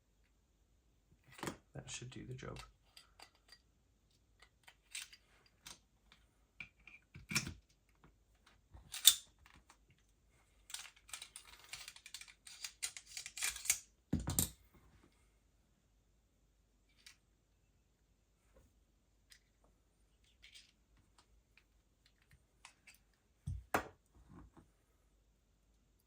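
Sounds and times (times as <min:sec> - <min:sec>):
small plastic parts clicking: 0:08.4 - 0:09.8, 0:10.7 - 0:14.4.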